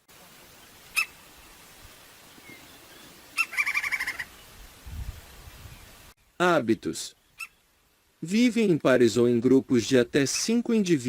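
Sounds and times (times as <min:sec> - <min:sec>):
woodpecker rapid chattering: 0:03.4 - 0:04.3.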